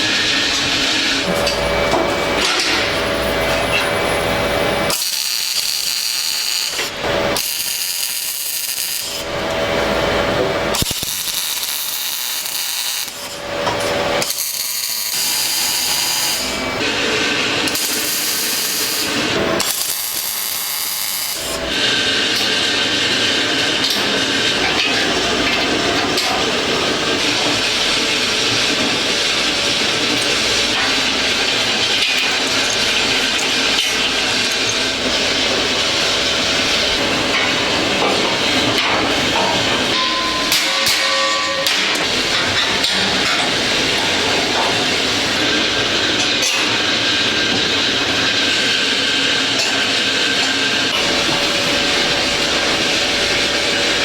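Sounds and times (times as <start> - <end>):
rasping abrasive power tool: 4.9 - 25.2, 50.2 - 54.0.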